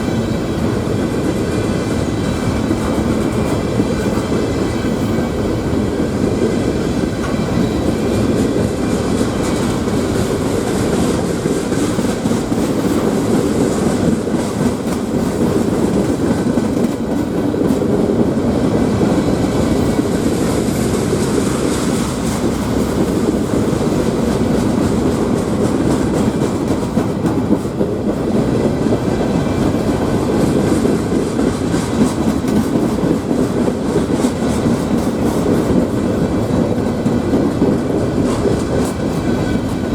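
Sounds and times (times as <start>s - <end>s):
freight train wheels rumbling: 0.0s - 39.9s
wheels clicking over rail joints: 0.0s - 39.9s.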